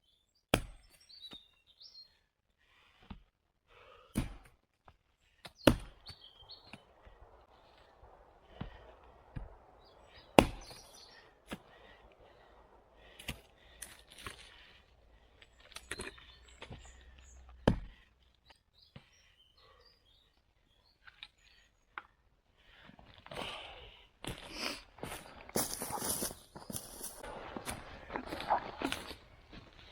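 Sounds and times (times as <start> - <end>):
wood knocking and snapping: 10.4 - 10.8.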